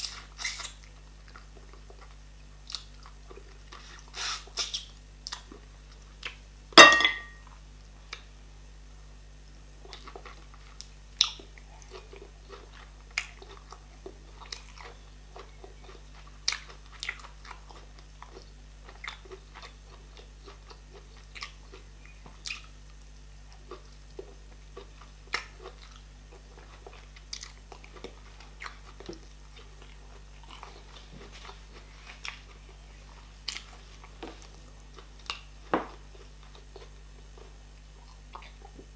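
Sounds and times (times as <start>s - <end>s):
person chewing: 9.8s - 38.9s.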